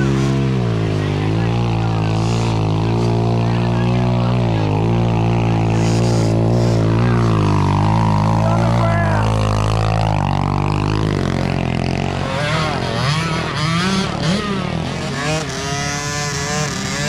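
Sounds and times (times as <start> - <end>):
dirt bike engines revving: 0.0 - 17.0
low engine drone: 0.0 - 17.0.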